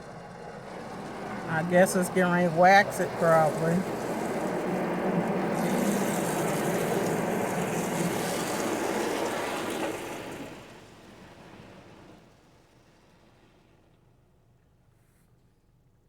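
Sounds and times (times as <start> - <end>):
machinery hum: 0.0 - 12.0
water spraying in car wash: 1.4 - 13.8.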